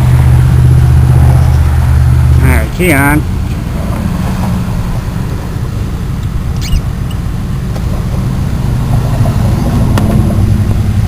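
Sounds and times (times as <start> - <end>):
brief high squeak: 6.5 - 7.2.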